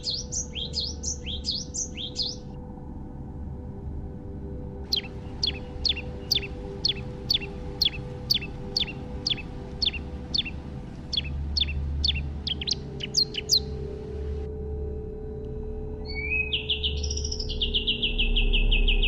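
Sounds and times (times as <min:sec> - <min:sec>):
songbird whistling: 0:00.0 - 0:02.5, 0:04.9 - 0:14.3, 0:16.0 - 0:19.0
ambient music drone: 0:00.0 - 0:19.0.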